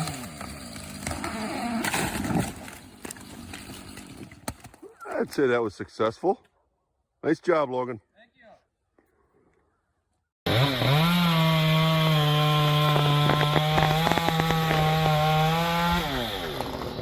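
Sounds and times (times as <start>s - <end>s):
chainsaw revving: 0.0s - 2.0s, 10.5s - 17.0s
chainsaw cutting wood: 0.0s - 4.4s, 10.5s - 17.0s.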